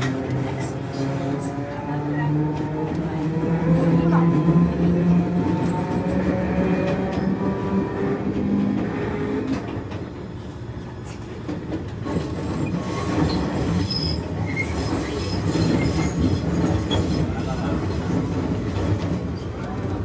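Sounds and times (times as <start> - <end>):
train wheels rumbling on rail: 0.0 - 20.0
high wheel squeals: 12.6 - 17.2.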